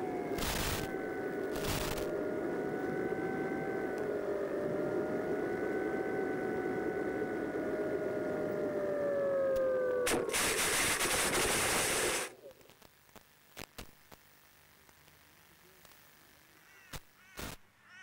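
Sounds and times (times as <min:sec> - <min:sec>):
electric motor whining: 0:00.0 - 0:12.5
loud rushing noise: 0:10.1 - 0:12.3
faint clicks: 0:15.8 - 0:16.1.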